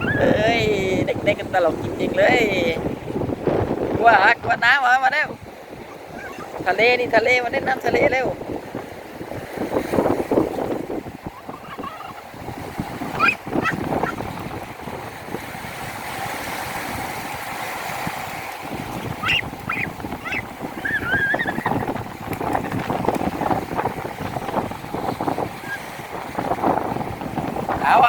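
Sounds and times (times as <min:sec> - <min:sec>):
sea waves washing in: 0:00.0 - 0:28.0
wind noise: 0:00.0 - 0:28.0
children squealing: 0:05.9 - 0:06.6, 0:11.4 - 0:12.3, 0:13.1 - 0:14.2, 0:19.2 - 0:21.8.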